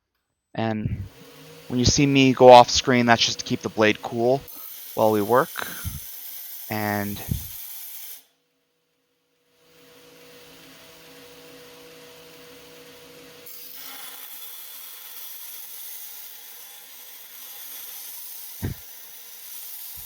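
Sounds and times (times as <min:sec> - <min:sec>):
power grinder humming: 0:01.0 - 0:07.9
knife blade grinding: 0:04.5 - 0:08.2.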